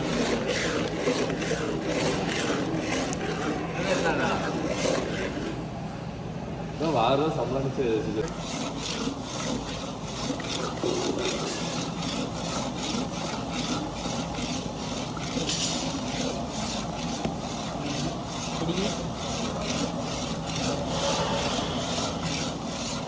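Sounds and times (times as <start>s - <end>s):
rhythmic scraping: 0.0s - 5.7s, 8.2s - 23.0s
low machine hum: 0.0s - 23.0s.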